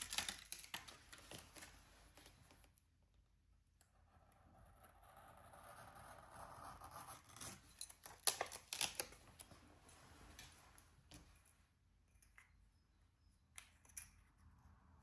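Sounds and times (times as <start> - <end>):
soft rustle: 9.2 - 11.7.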